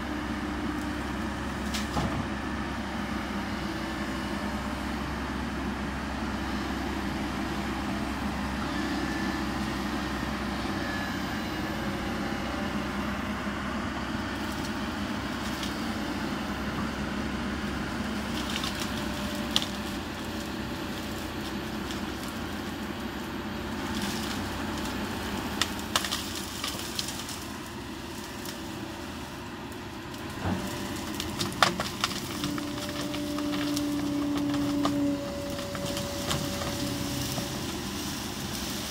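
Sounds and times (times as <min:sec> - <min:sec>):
excavator engine running: 0:00.0 - 0:38.9
wood cracking and snapping: 0:18.3 - 0:20.5, 0:23.9 - 0:28.6, 0:30.2 - 0:37.8.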